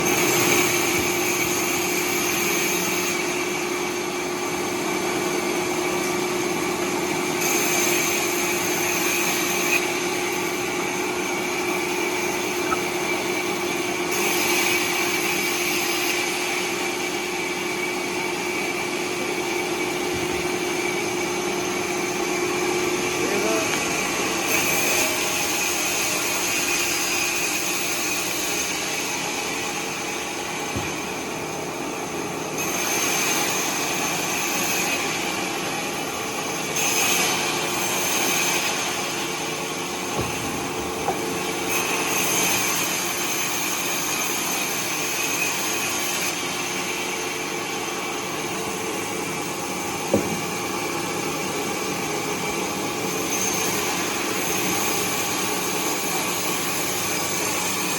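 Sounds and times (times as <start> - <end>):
bandsaw cutting timber: 0.0 - 3.4, 23.2 - 31.7, 32.5 - 57.9.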